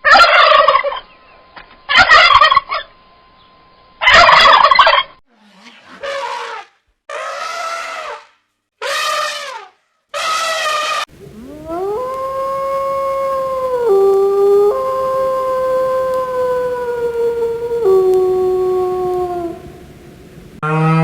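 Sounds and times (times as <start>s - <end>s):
dog howling: 11.1s - 20.6s.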